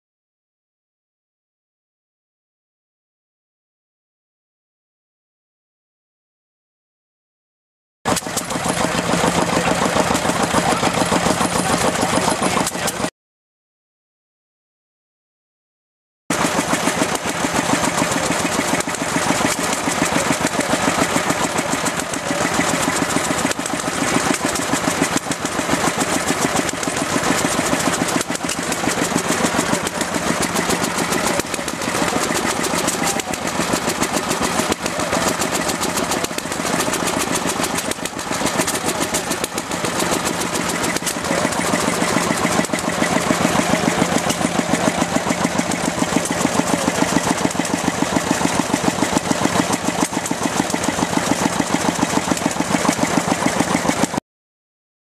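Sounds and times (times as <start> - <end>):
antique engine running: 8.1 - 13.1, 16.3 - 54.2.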